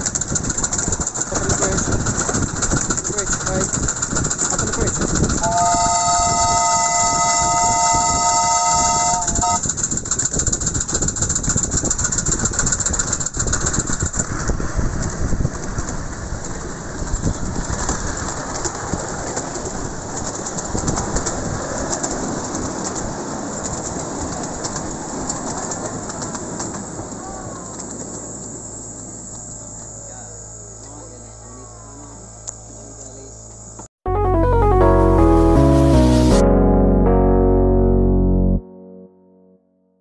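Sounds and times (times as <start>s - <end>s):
wheel clatter: 0.0s - 6.6s, 9.3s - 28.5s
train rumbling along track: 0.0s - 30.0s
steam locomotive whistle: 5.4s - 9.7s.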